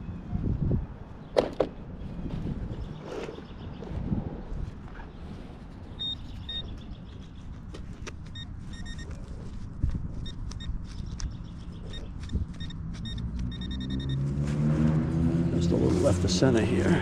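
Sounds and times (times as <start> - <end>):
traffic rumble: 0.0 - 17.0
metal detector high beeps: 8.4 - 9.2, 11.9 - 14.2.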